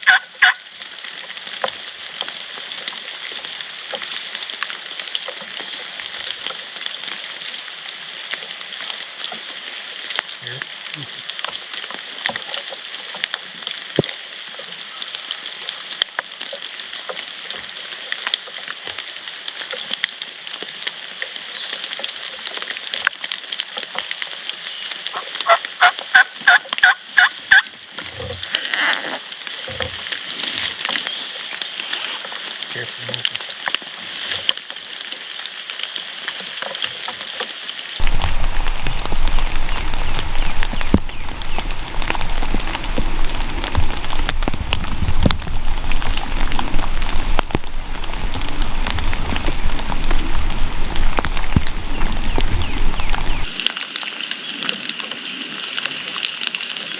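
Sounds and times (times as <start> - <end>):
turkey yelping: 0.0 - 0.6
rain hiss: 0.0 - 36.7, 37.5 - 54.4
water dripping: 38.0 - 53.6.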